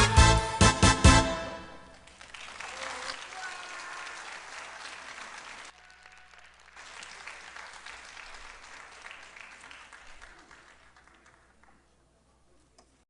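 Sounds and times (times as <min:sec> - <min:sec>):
audience applauding: 0:01.9 - 0:11.9.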